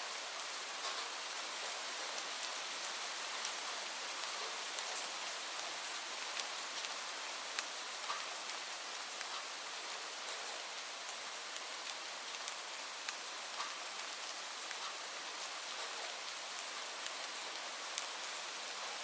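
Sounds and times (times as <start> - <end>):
rain falling on leaves: 0.0 - 19.0
raindrop ticks: 2.4 - 3.6, 11.1 - 13.8.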